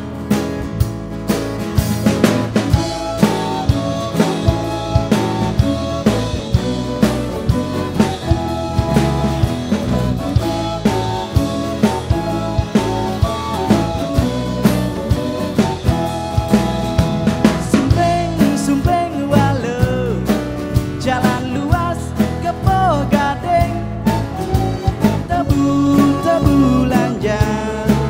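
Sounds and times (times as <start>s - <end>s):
bass: 0.0s - 28.0s
drum beat: 0.1s - 19.8s
sliding melody line: 1.9s - 20.1s, 23.1s - 28.0s.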